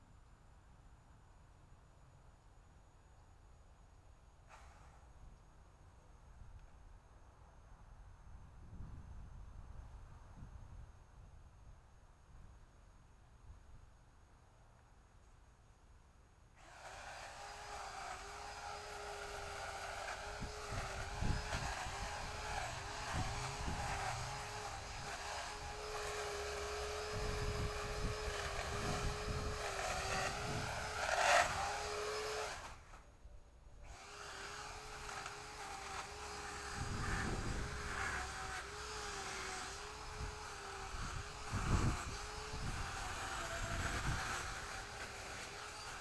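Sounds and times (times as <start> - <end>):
chainsaw running with whine: 16.6 - 33.0, 33.8 - 46.0.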